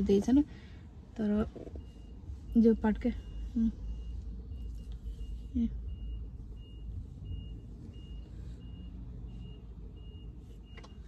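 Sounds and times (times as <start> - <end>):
street traffic: 0.0 - 11.0
truck reversing alarm beeping: 1.2 - 11.0.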